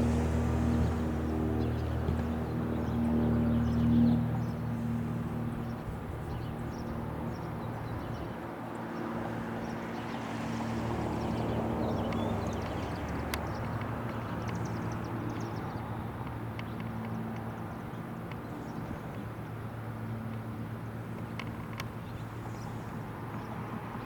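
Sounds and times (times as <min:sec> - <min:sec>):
low mechanical hum: 0:00.0 - 0:08.4
noisy outdoor background: 0:00.0 - 0:24.0.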